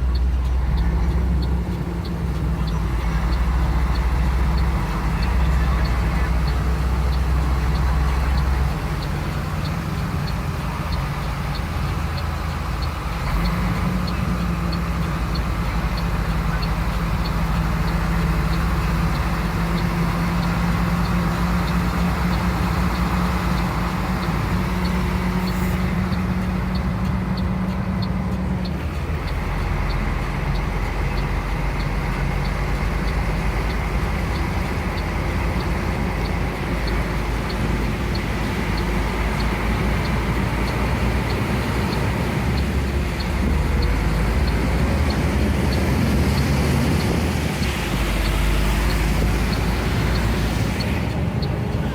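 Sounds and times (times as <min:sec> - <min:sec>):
faint regular ticking: 0:00.0 - 0:51.9
vehicle engine running: 0:00.0 - 0:51.9.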